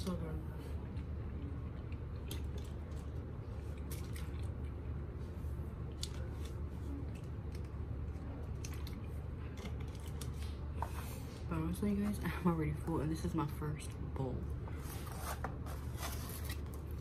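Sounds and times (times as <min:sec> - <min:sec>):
steady low hum: 0:00.0 - 0:17.0
chewing and wet mouth sounds: 0:00.6 - 0:10.8.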